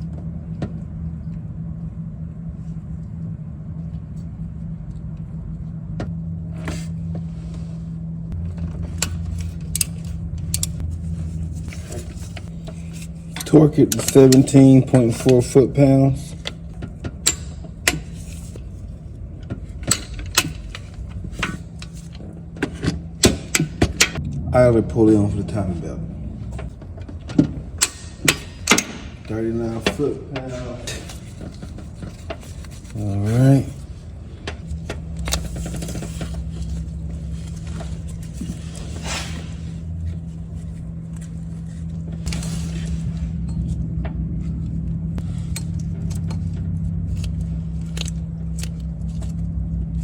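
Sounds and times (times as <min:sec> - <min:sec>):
steady low hum: 0:00.0 - 0:50.0
hand tools clicking and scraping: 0:11.6 - 0:18.8.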